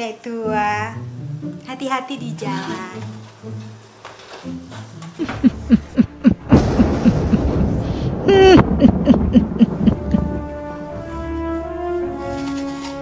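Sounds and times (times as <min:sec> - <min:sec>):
cackling witch laugh: 0:05.2 - 0:10.4
rushing noise: 0:06.5 - 0:10.5
music with long held notes: 0:09.6 - 0:13.0.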